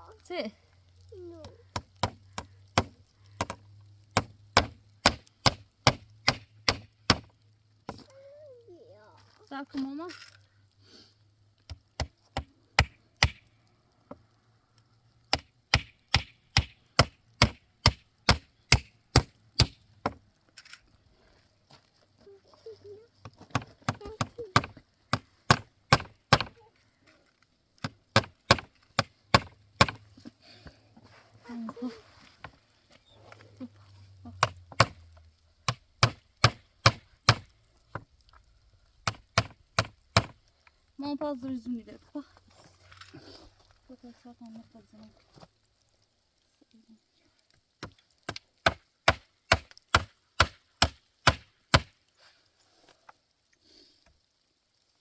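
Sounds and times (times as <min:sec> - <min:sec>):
tool striking wood: 0:01.7 - 0:07.3, 0:23.5 - 0:26.6, 0:27.8 - 0:30.0, 0:34.4 - 0:35.0, 0:35.7 - 0:37.5, 0:39.0 - 0:40.4, 0:48.6 - 0:51.9.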